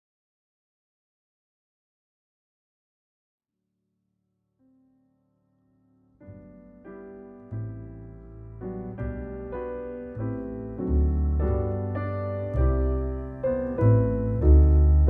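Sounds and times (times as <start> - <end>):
piano chords: 5.3 - 15.0.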